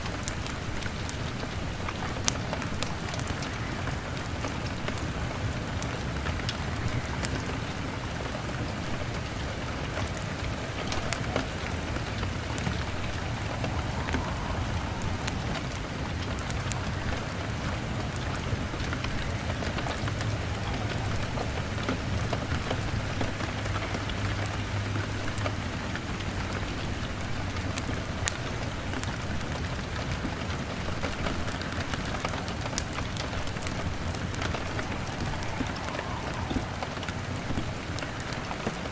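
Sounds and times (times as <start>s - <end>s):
log fire crackling: 0.0s - 38.9s
rain on a window pane: 0.0s - 38.9s.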